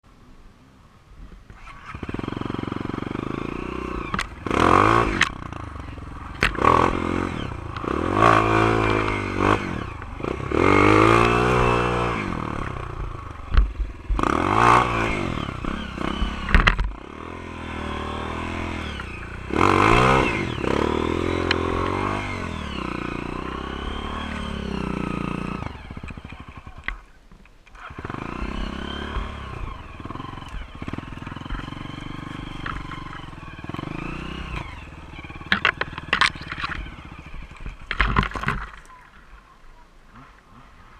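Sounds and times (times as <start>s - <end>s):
dirt bike engine revving: 1.6s - 39.1s
sharp knocks and clatter: 35.5s - 36.9s, 37.5s - 39.0s.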